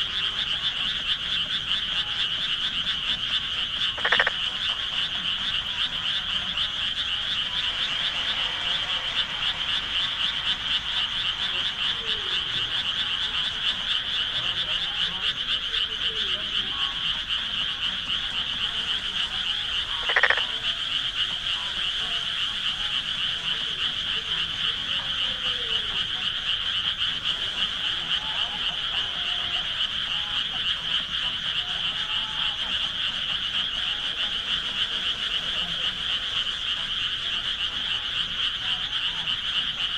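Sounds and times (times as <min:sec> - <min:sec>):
frog chorus trilling: 0:00.0 - 0:39.9
rising frog call: 0:00.0 - 0:39.9.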